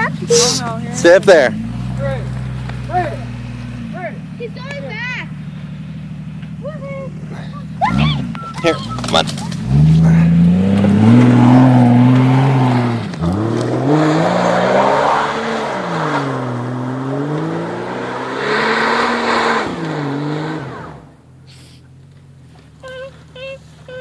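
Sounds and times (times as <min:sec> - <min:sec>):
car engine revving hard: 0:00.0 - 0:04.2, 0:07.2 - 0:21.2.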